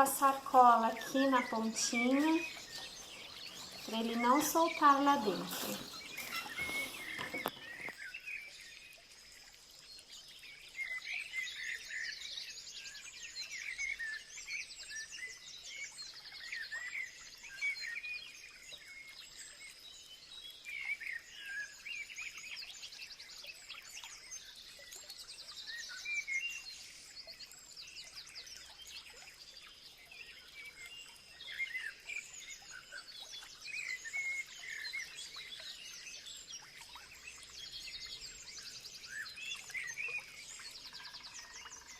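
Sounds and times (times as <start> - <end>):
birds chirping and singing: 0.0 - 8.0.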